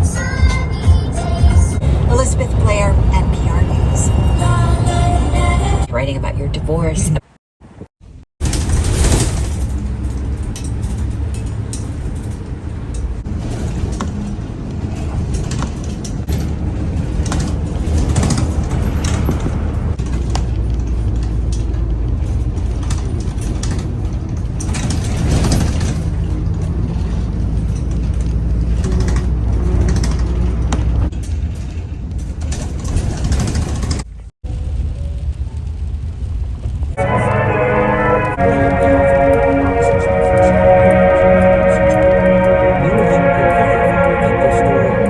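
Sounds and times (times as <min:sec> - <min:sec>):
train rumble: 0:00.0 - 0:45.0
wheels clattering over rails: 0:08.4 - 0:37.0.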